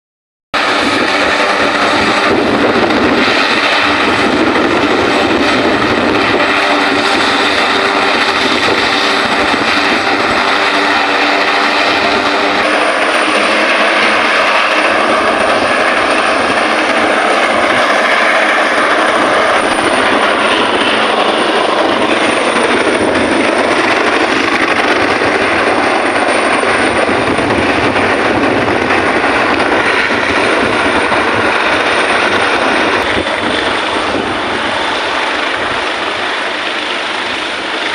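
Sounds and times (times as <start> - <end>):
helicopter running: 0.6 - 37.9.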